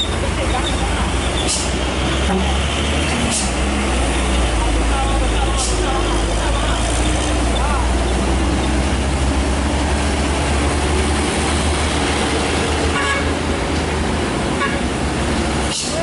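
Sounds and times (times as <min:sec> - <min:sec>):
heavy truck engine running: 0:00.0 - 0:16.0
road noise: 0:00.0 - 0:16.0
truck horn toots: 0:02.2 - 0:02.6, 0:12.9 - 0:13.4, 0:14.6 - 0:14.9.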